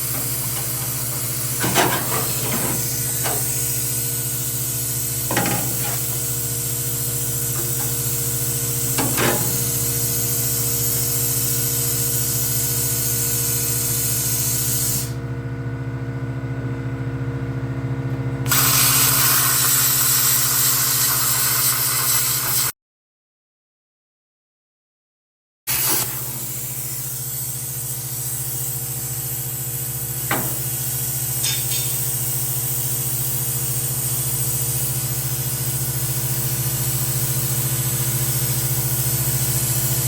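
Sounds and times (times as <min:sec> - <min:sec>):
electrical hum: 0:00.0 - 0:11.6, 0:28.8 - 0:33.0
plasma cutter hissing: 0:00.0 - 0:15.1, 0:18.5 - 0:22.6, 0:25.7 - 0:40.0.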